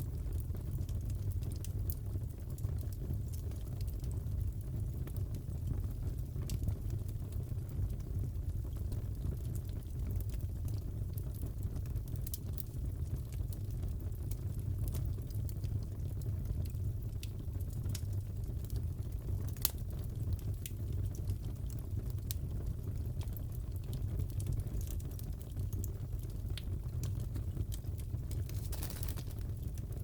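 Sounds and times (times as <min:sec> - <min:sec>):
wood fire crackling: 0:00.0 - 0:30.0
fire pops and snaps: 0:06.4 - 0:30.0.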